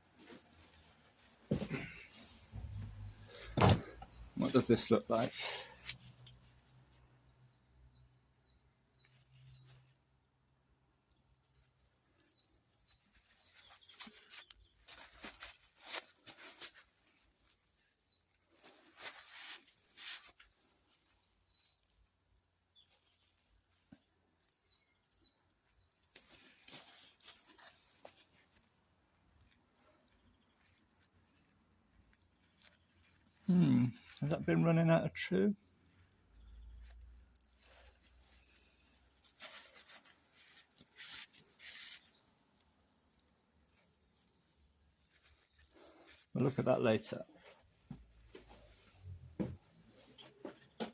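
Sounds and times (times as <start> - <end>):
small bird chirping: 2.6 - 4.7, 6.1 - 22.0, 22.6 - 28.5, 29.4 - 35.0, 36.3 - 46.2.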